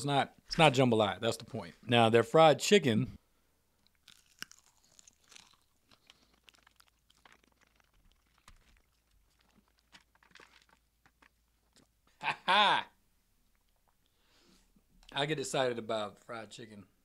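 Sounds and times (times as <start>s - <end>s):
crunching fried chicken: 3.9s - 11.9s.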